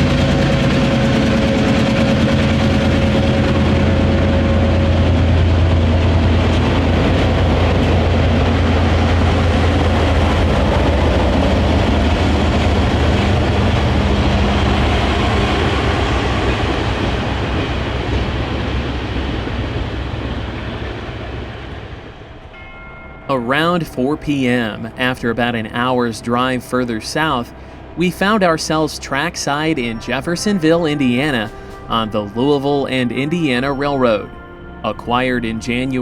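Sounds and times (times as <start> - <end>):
train wheels on rail: 0.0 - 22.8
diesel locomotive engine hum: 0.0 - 36.0.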